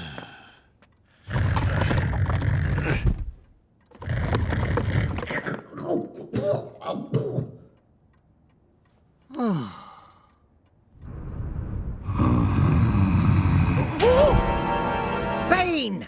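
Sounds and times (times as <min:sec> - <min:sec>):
falling sigh-like groan: 0:12.0 - 0:14.7
music: 0:13.9 - 0:16.0.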